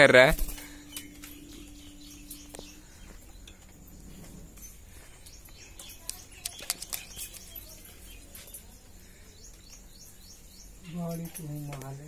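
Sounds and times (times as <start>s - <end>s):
sharp clicks: 6.0s - 7.6s.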